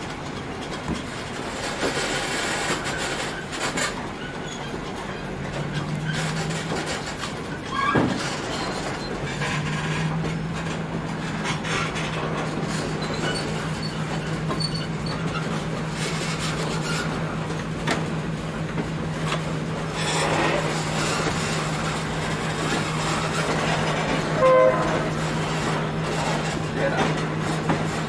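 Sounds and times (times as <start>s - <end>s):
train wheels running on track: 0.0s - 28.0s
locomotive horn toot: 24.1s - 25.2s.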